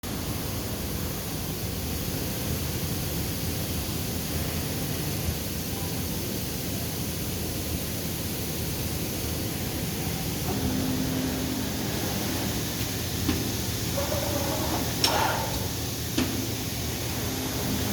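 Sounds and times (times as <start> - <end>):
woodworking machinery running: 10.4 - 17.9
low hum: 10.5 - 15.1.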